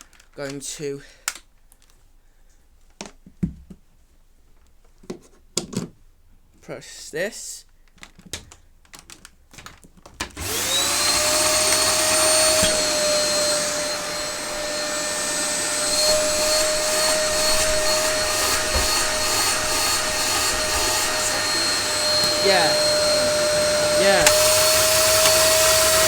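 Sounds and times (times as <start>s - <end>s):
vacuum cleaner motor whine: 10.4s - 26.0s.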